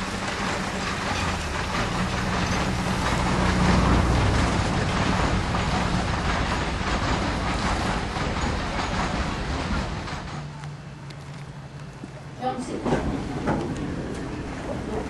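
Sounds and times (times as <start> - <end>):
train carriages rumbling on rails: 0.0 - 15.0.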